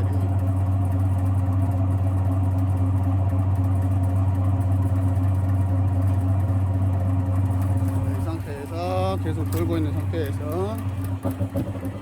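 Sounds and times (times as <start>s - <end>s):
honey extractor motor hum: 0.0s - 12.0s.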